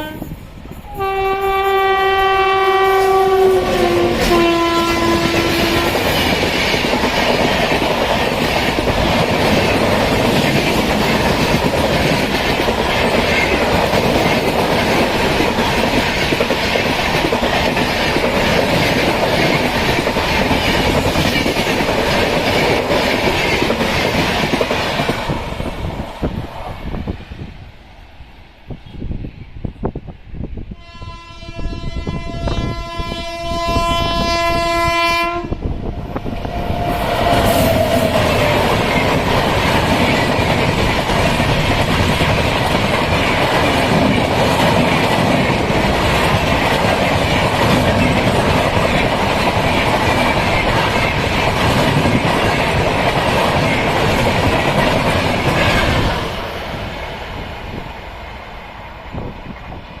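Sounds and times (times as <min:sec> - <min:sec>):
train passing at high speed: 0:00.0 - 1:00.0
locomotive horn blast: 0:00.9 - 0:06.1, 0:30.8 - 0:35.6.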